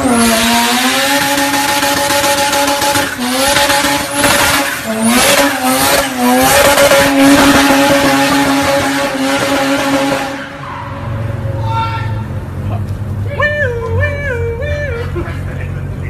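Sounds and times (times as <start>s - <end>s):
car engine at high revs: 0.0s - 11.5s.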